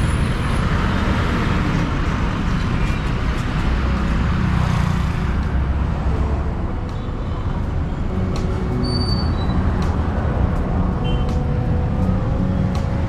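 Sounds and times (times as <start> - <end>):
vehicles passing: 0.0 - 13.0
low engine rumble: 5.0 - 13.0.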